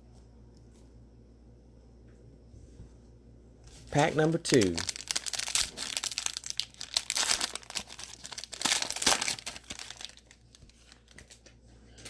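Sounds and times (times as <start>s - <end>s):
foil wrapper tearing and crinkling: 4.4s - 11.5s.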